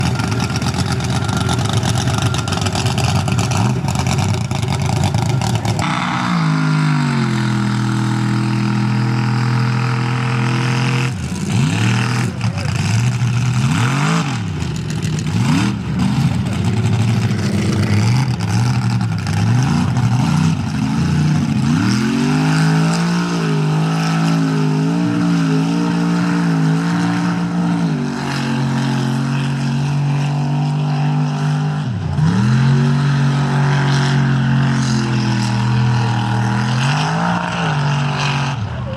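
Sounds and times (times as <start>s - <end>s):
truck engine revving: 0.0s - 38.9s.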